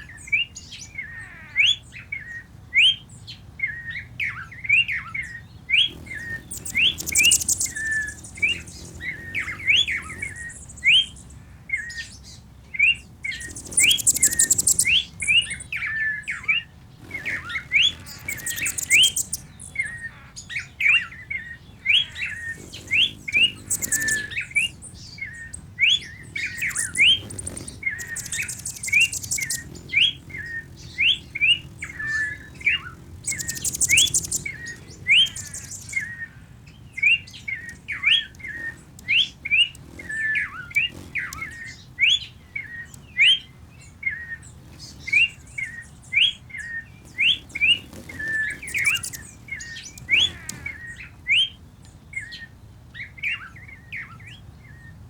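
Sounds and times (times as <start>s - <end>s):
birds chirping: 0.0s - 55.0s
high rapid bird trill: 5.9s - 11.4s, 12.9s - 43.2s, 44.6s - 50.9s.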